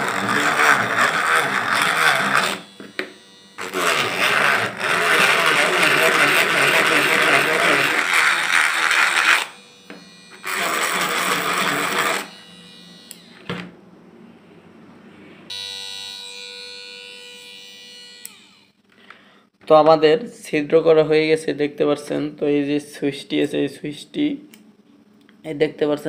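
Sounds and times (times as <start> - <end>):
electric drill boring plastic: 0.0 - 13.7
motor whining: 0.0 - 13.7.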